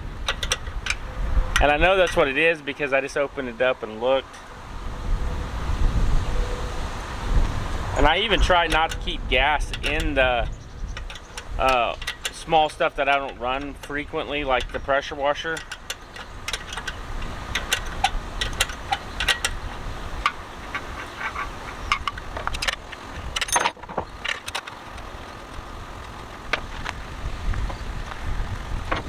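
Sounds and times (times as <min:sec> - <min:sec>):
metal tools clinking on metal: 0:00.3 - 0:02.8, 0:08.2 - 0:25.1.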